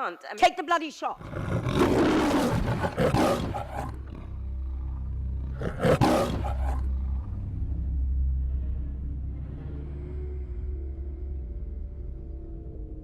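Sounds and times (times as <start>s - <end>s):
loud noisy roar: 5.5s - 6.9s
low rumble: 6.4s - 13.0s.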